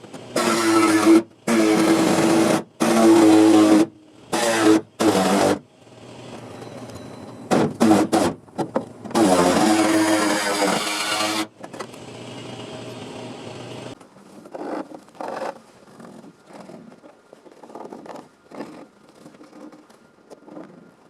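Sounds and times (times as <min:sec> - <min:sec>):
small motor running: 0:00.3 - 0:05.6, 0:09.2 - 0:11.5
scraping and rubbing noises: 0:09.1 - 0:11.5, 0:14.0 - 0:21.0.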